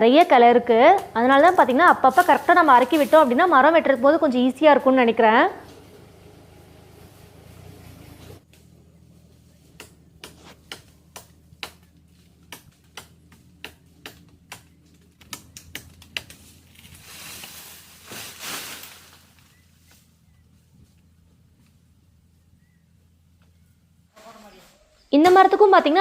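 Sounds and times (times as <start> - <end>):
sharp irregular clicks: 12.5 - 16.4.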